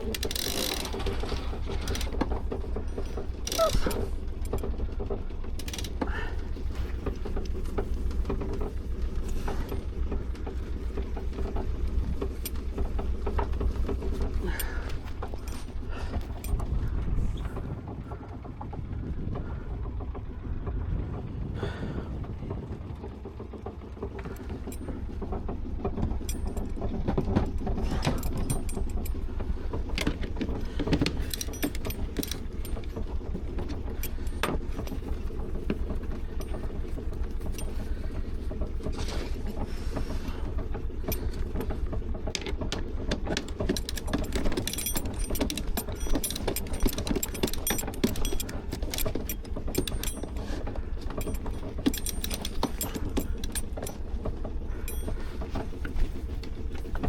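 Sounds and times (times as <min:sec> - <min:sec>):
deck gear clicking and rattling: 0:00.0 - 0:57.0.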